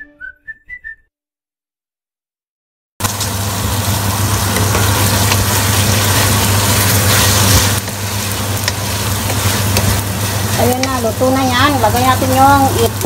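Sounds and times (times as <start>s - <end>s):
vegetables sizzling in a pot: 3.0s - 13.0s
wooden spatula stirring: 4.6s - 12.8s.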